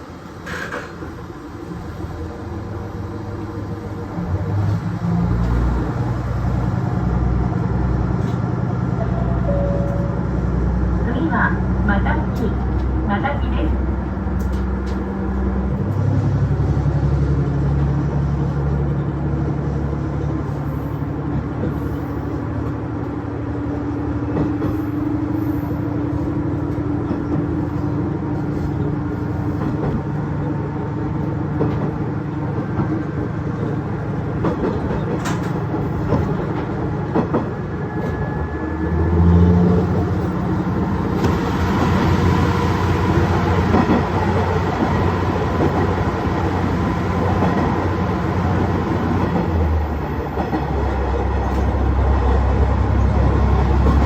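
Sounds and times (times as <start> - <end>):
diesel railcar engine: 0.0 - 54.0.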